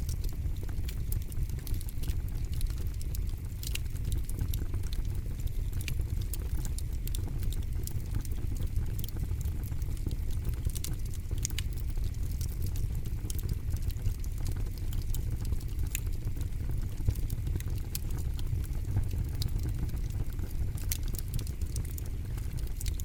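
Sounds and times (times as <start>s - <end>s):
campfire burning: 0.0s - 23.0s
wood crackling and popping: 0.0s - 23.0s.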